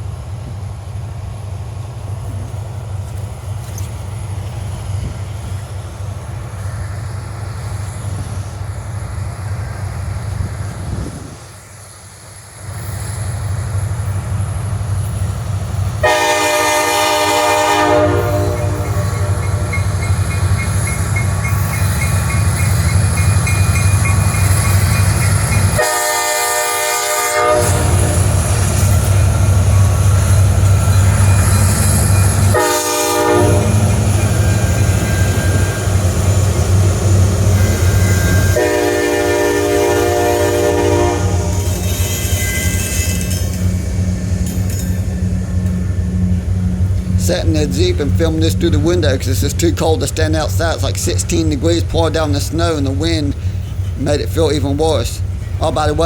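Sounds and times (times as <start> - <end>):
train rumbling: 0.0 - 56.0
locomotive horn blasts: 16.0 - 20.0, 25.7 - 28.4, 32.3 - 34.7, 37.6 - 42.8.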